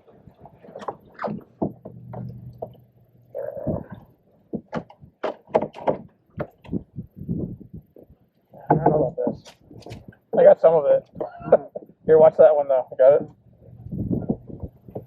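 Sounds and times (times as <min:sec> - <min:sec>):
wood bumping canoe hull: 0:00.5 - 0:02.8, 0:03.6 - 0:10.5.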